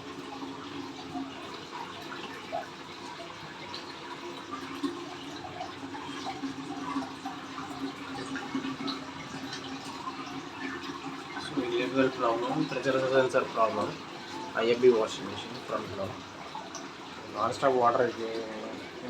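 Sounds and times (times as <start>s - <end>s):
water running into washing machine: 0.0s - 19.0s.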